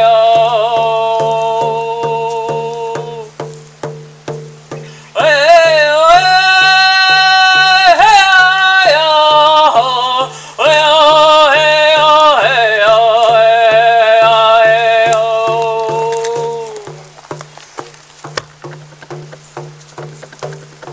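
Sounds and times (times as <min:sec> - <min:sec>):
man singing high held notes: 0:00.0 - 0:03.6, 0:04.6 - 0:17.2
hand drum beat: 0:00.0 - 0:20.9.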